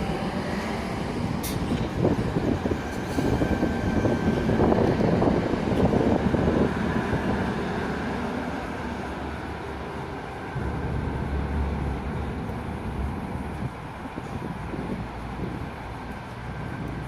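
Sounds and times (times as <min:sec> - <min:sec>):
electric train equipment humming: 0:00.0 - 0:17.0
low rumble: 0:10.5 - 0:15.7.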